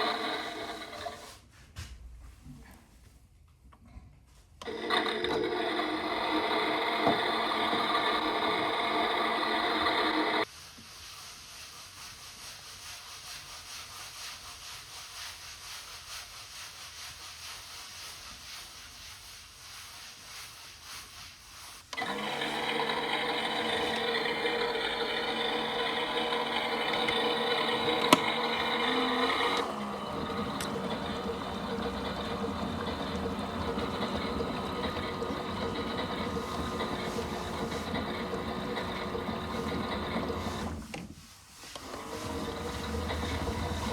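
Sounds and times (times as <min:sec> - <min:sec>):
washing machine running: 0:00.0 - 0:01.2, 0:04.6 - 0:10.5, 0:22.0 - 0:41.0, 0:41.8 - 0:43.9.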